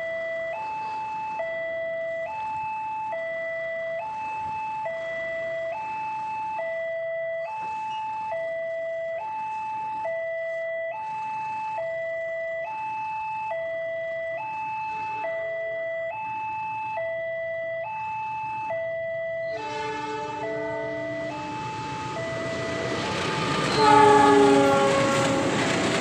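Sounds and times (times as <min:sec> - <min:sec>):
level crossing two-tone alarm: 0:00.0 - 0:26.0.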